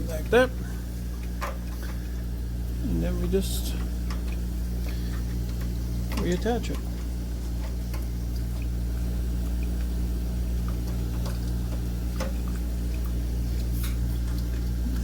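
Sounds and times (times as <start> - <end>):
water draining from tank: 0.0 - 15.0.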